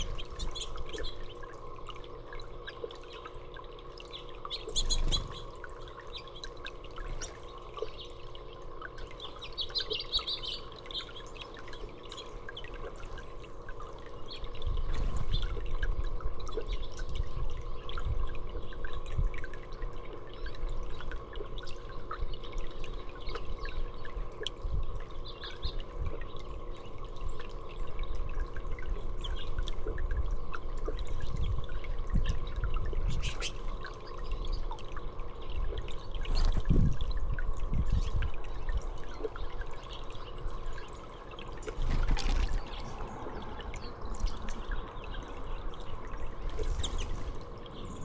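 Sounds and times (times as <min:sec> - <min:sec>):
small water splashes: 0:00.0 - 0:48.0
water trickling and dripping: 0:00.0 - 0:48.0
wind rumble on microphone: 0:14.5 - 0:19.5, 0:28.0 - 0:34.7, 0:35.5 - 0:39.1, 0:41.6 - 0:48.0.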